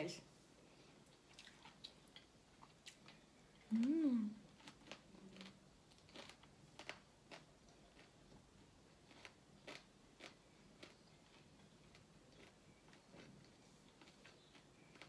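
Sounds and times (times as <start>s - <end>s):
chewing crunches: 4.5s - 15.0s.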